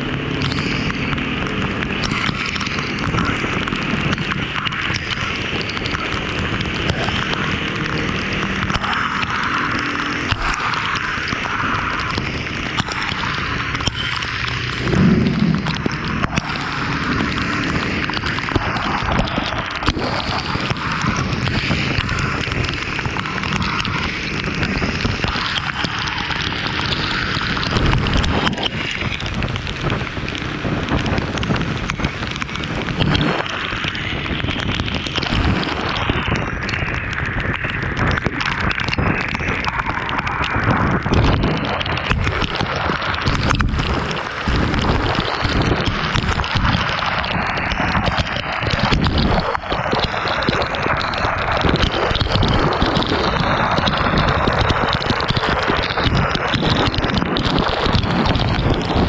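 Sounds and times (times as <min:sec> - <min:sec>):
rain: 0:00.0 - 0:59.0
road noise: 0:00.0 - 0:59.0
wind buffeting microphone: 0:00.0 - 0:59.0.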